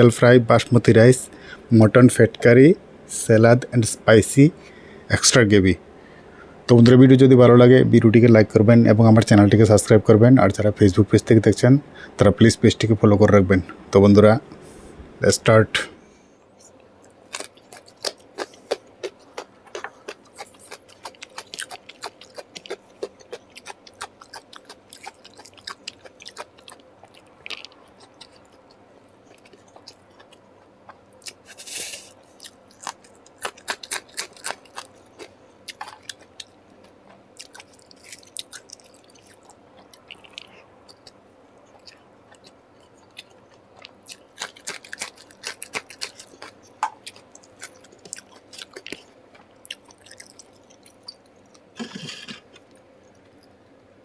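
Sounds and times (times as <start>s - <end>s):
person chewing and crunching: 16.7s - 53.6s.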